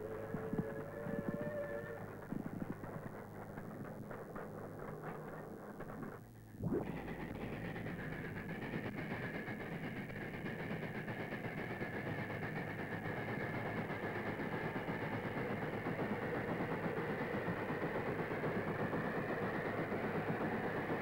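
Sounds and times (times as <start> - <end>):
train rumbling past: 0.0 - 5.3.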